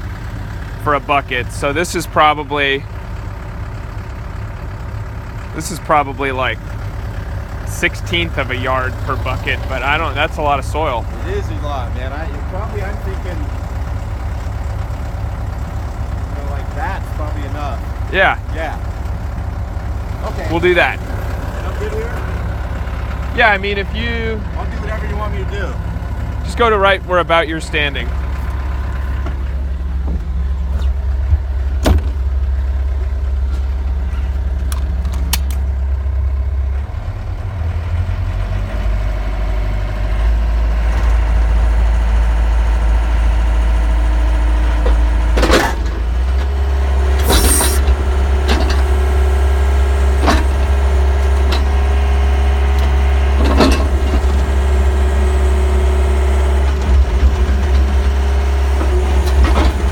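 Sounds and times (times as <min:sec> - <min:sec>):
excavator diesel engine running: 0:00.0 - 0:59.9
brief hiss: 0:47.2 - 0:47.9.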